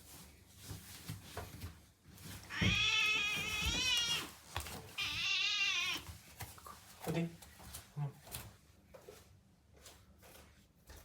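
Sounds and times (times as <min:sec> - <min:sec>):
cat meowing: 0:02.5 - 0:06.1.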